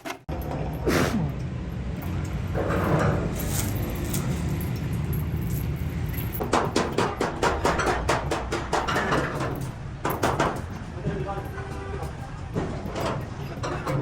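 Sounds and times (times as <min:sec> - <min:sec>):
sharp knocks: 0:06.4 - 0:10.7.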